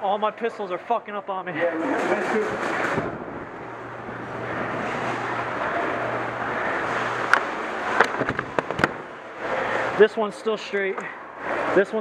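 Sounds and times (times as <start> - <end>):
rushing background noise: 1.7 - 12.0
low hum: 1.8 - 10.0.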